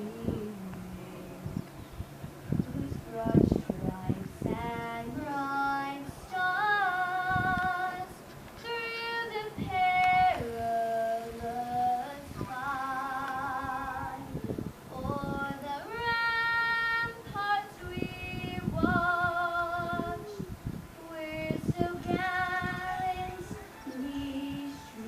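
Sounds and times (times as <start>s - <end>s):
woman singing solo: 15.0s - 25.0s.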